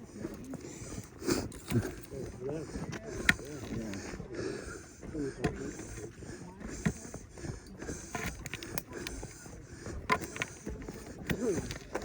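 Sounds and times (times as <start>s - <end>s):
footsteps on dirt trail: 0.0s - 12.0s.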